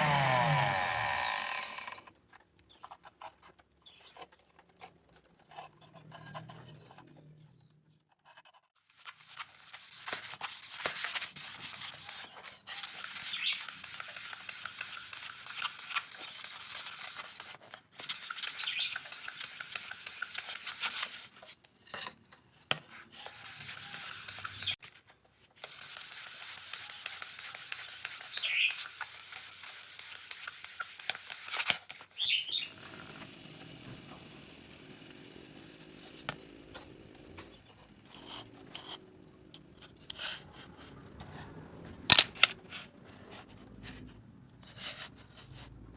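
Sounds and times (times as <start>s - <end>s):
scratchy rubbing of bamboo: 0.0s - 2.0s, 8.3s - 22.1s, 22.8s - 41.0s.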